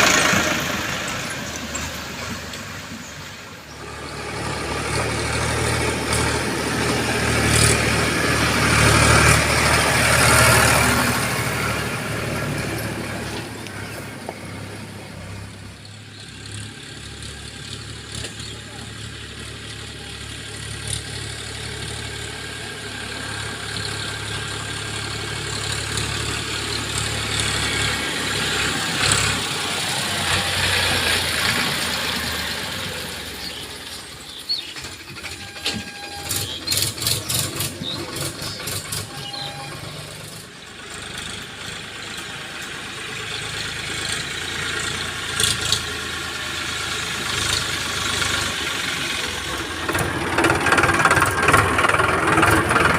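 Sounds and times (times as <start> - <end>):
heavy machinery diesel engine: 0.0 - 52.9
rattling clanking strokes: 33.9 - 40.5, 48.2 - 52.9.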